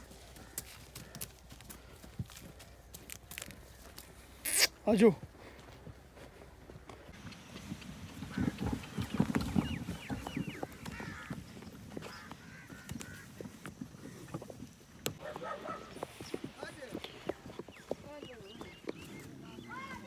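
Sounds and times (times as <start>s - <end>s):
horse hooves clopping on dirt: 0.0s - 20.0s
birds honking calls: 7.1s - 14.4s, 15.2s - 20.0s.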